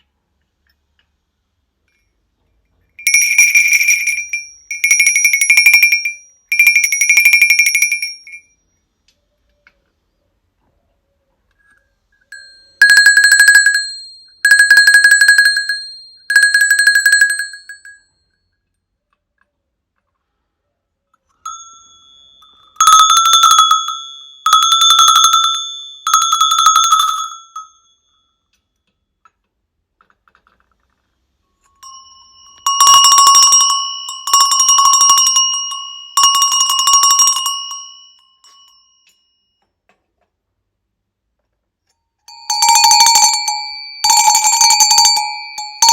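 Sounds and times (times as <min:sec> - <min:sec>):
cowbells clanging: 0:03.0 - 0:08.4, 0:21.4 - 0:28.0, 0:31.6 - 0:39.2, 0:42.3 - 0:45.9.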